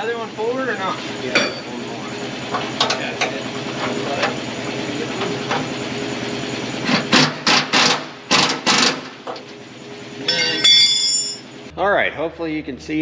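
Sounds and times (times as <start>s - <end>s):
harsh tool bursts: 6.9s - 9.2s.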